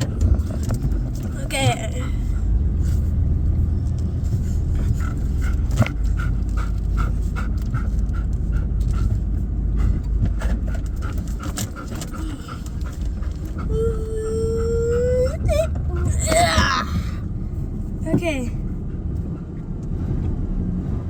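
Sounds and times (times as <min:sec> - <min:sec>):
road noise in cab: 0:00.0 - 0:21.0
truck engine rumble: 0:00.0 - 0:21.0
dog panting rapidly: 0:04.0 - 0:19.8.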